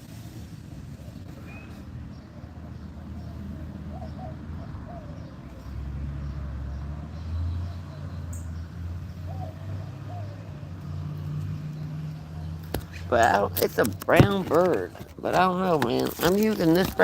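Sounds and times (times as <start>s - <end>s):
small birds chirping: 1.3s - 17.0s
doves cooing: 3.2s - 5.3s, 9.3s - 10.6s.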